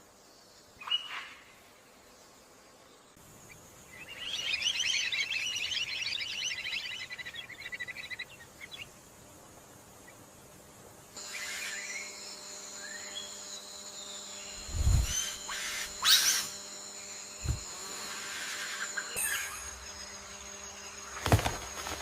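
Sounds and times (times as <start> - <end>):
steady high-pitched drone: 11.2 - 21.2
bird chirps and whistle: 14.5 - 16.6.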